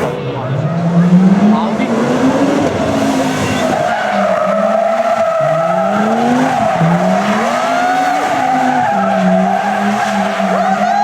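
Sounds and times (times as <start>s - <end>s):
rally car engine revving: 0.0s - 11.0s
tyres squealing on tarmac: 2.8s - 11.0s.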